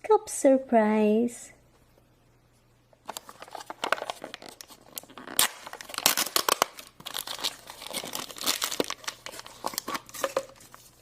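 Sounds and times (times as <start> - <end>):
packaging tearing and crinkling: 3.0 - 11.0.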